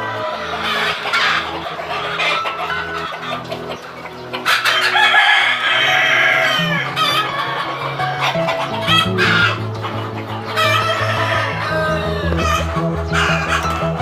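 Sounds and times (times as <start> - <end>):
chickens clucking: 0.0 - 14.0
music with steady bass line: 0.0 - 14.0
rooster crowing: 4.5 - 9.6, 10.6 - 13.6.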